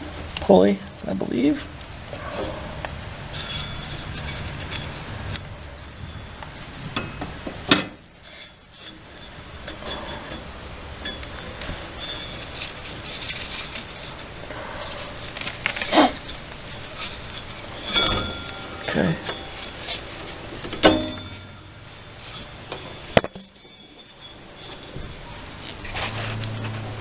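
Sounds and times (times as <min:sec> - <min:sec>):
belt rubbing on pulleys: 0:01.6 - 0:07.0, 0:08.1 - 0:27.0
light metallic clinks: 0:17.0 - 0:26.6.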